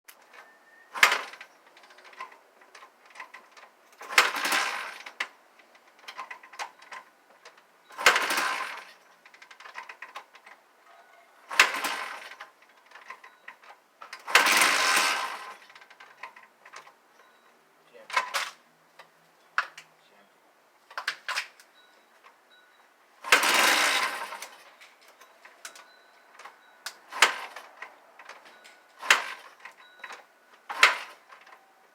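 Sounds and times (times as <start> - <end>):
dirt bike engine turning over: 0.9 - 10.6, 11.5 - 16.9, 23.2 - 31.9
kick-start clack: 1.0 - 5.3, 7.8 - 10.6, 11.5 - 17.4, 23.2 - 31.6.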